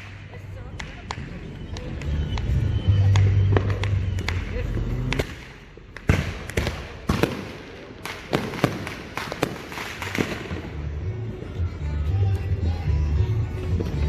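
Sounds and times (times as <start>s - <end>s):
fireworks bangs: 0.0s - 11.0s
fireworks crackling: 0.0s - 11.6s.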